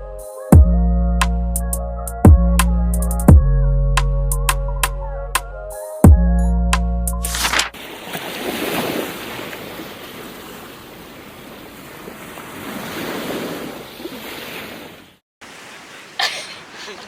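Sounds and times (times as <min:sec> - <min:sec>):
ocean waves washing onto beach: 0:07.3 - 0:17.0.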